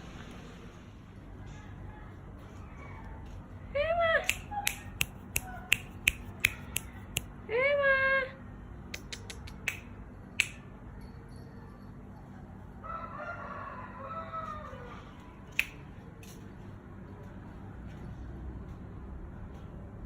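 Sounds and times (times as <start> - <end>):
sharp clicks: 4.2 - 7.3, 8.9 - 10.6
rooster crowing faintly: 12.6 - 15.6.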